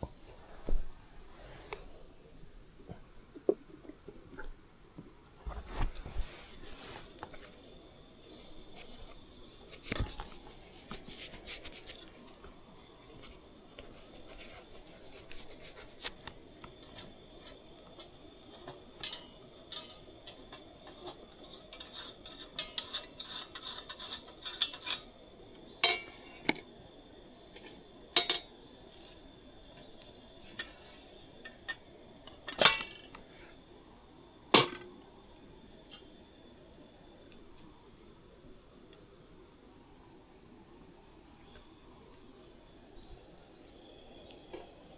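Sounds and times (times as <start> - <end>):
clicks and clinks of objects: 18.0 - 25.2, 27.6 - 29.2, 31.5 - 33.2.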